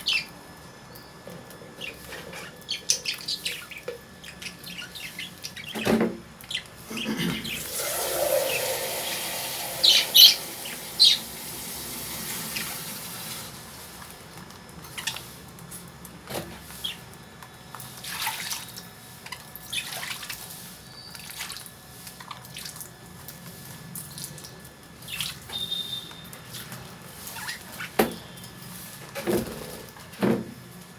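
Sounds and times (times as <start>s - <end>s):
lovebirds chirping: 0.0s - 1.1s, 1.8s - 11.4s
sharp high bird calls: 1.8s - 5.9s, 6.5s - 11.4s
hissing rush: 7.6s - 12.7s.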